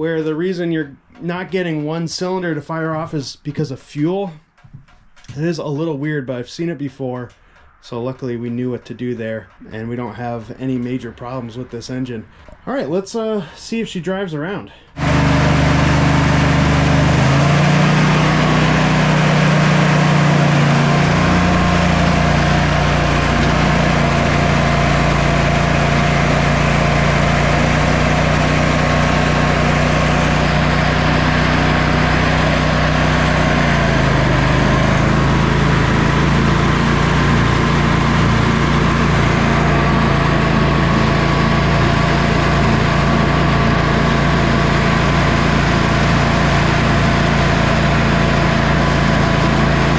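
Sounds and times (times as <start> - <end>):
lawn tractor engine running: 15.0 - 49.9.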